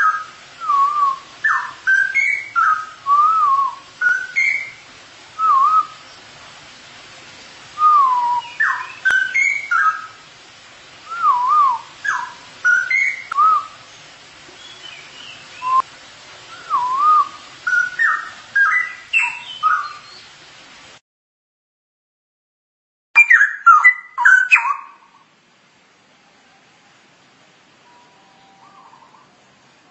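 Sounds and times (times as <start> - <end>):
bird singing liquid whistles: 0.0 - 4.8, 5.4 - 6.3, 7.8 - 10.2, 11.0 - 14.0, 14.6 - 15.9, 16.5 - 20.3, 23.2 - 25.1, 27.8 - 29.2.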